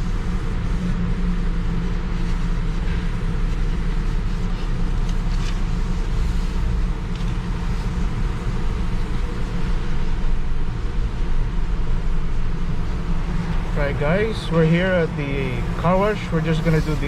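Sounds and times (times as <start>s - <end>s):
engine and road noise in car cabin: 0.0s - 17.0s.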